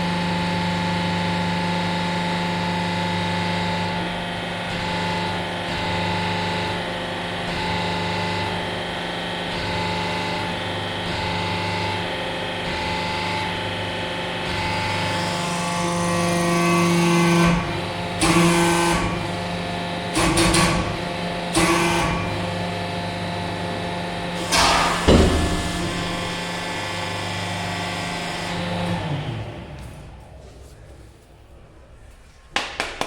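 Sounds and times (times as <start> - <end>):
pump motor humming: 16.9 - 30.2.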